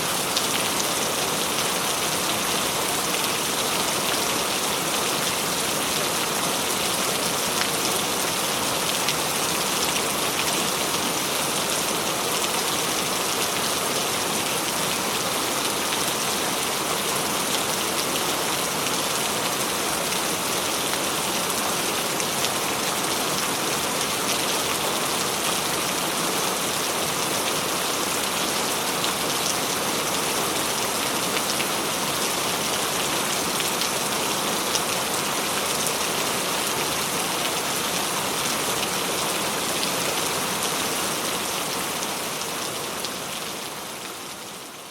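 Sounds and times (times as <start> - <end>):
heavy rainfall: 0.0 - 44.9.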